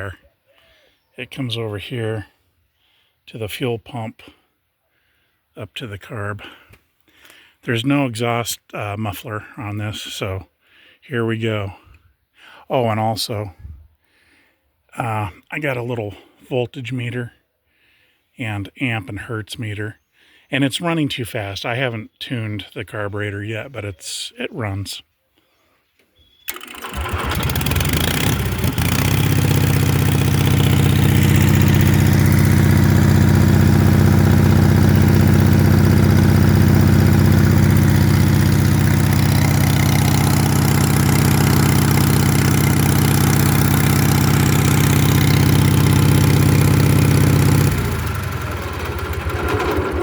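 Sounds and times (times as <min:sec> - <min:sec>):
generator engine starting and running: 0:26.4 - 0:50.0.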